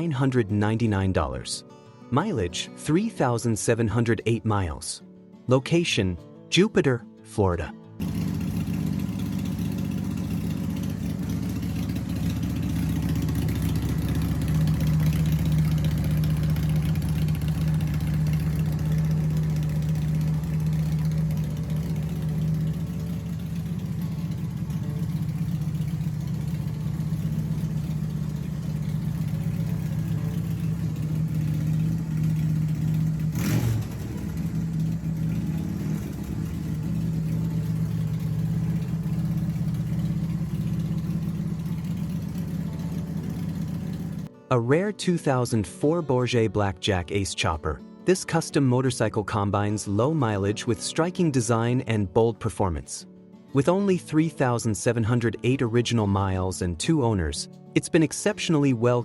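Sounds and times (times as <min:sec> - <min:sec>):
motorcycle engine idling: 0:08.0 - 0:44.3.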